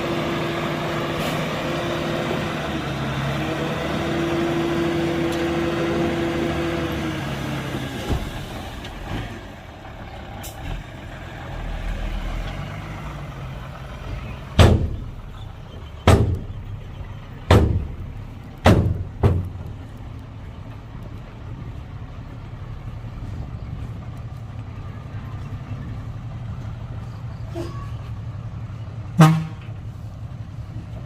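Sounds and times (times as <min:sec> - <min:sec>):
diesel machinery running: 0:00.0 - 0:31.0
loud ringing bangs: 0:17.5 - 0:18.0.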